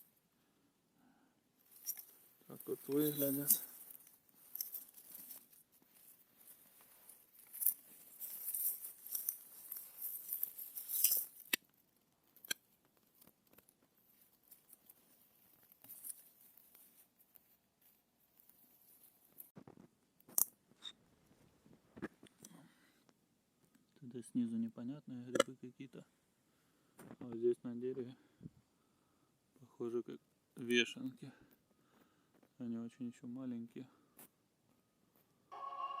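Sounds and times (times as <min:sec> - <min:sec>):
dry leaves rustling: 0:01.8 - 0:11.5.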